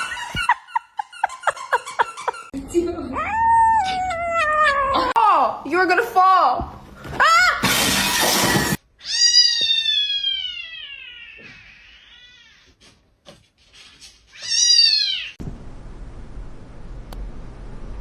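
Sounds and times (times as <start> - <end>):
cat meowing: 9.0 - 12.8.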